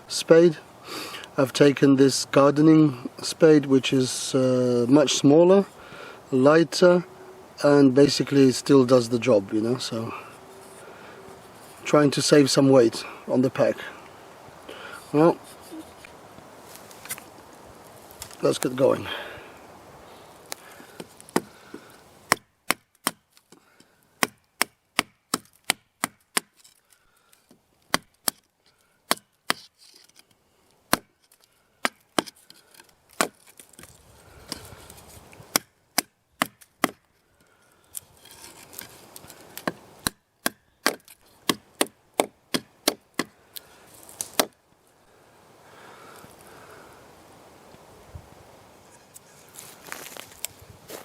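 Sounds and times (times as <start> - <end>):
spade chopping into dry ground: 20.9 - 21.6, 22.3 - 23.5, 24.2 - 26.7, 27.9 - 28.4, 29.1 - 30.1, 30.9 - 31.2, 31.8 - 34.8, 35.5 - 37.1, 38.2 - 43.4, 44.1 - 44.6.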